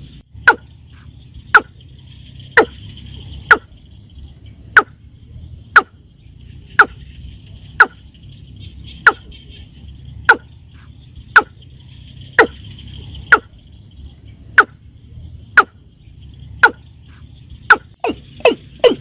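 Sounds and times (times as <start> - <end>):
watercock calls: 0.0 - 3.8, 4.7 - 5.0, 5.7 - 6.0, 6.6 - 13.8, 14.5 - 14.8, 15.5 - 15.8, 16.5 - 19.0.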